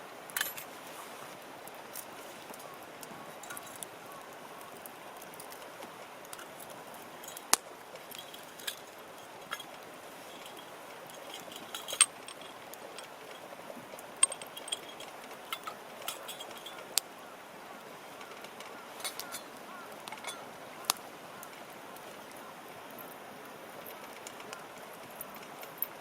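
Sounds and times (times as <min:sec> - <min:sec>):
steady low hiss: 0:00.0 - 0:26.0
sharp clicks and metallic clinks: 0:06.3 - 0:17.0, 0:18.2 - 0:21.0.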